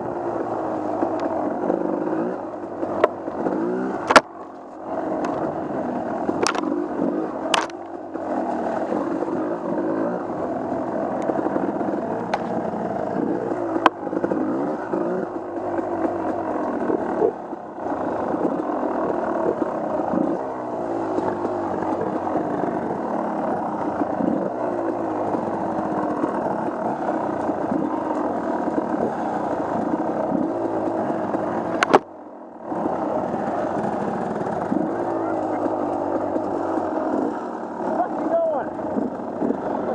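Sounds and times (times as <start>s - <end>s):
off-road vehicle engine revving: 0.0s - 39.9s.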